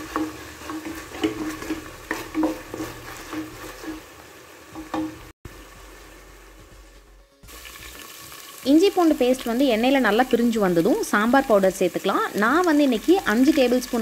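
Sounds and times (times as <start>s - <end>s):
spatula scraping a pot: 0.0s - 4.1s
paste sizzling in hot oil: 0.0s - 14.0s.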